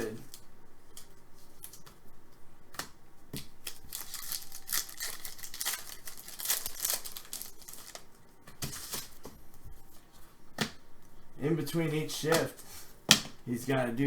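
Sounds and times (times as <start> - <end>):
cards and wrappers crinkling: 3.4 - 9.2.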